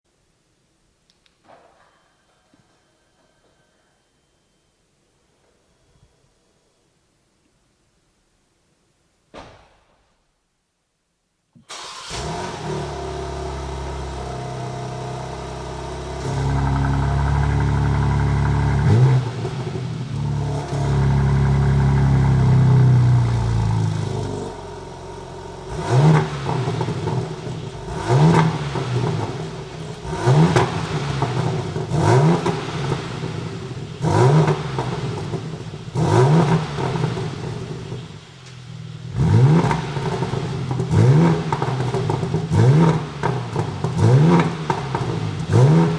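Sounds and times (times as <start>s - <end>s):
car engine idling: 11.7s - 45.9s
engine throttle blips: 11.7s - 45.9s.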